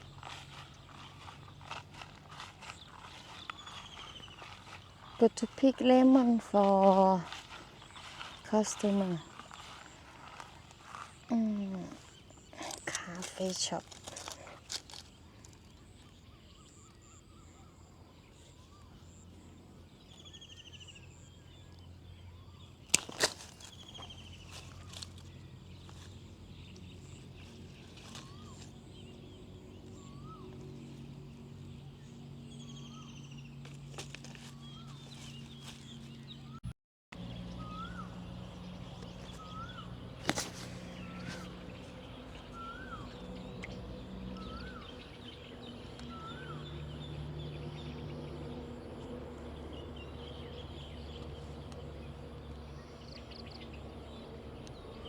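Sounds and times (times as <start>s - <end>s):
bird calling: 0.0s - 19.2s, 20.1s - 31.1s, 37.2s - 47.9s
birds chirping faintly: 0.0s - 55.0s
steady low hum: 0.0s - 55.0s.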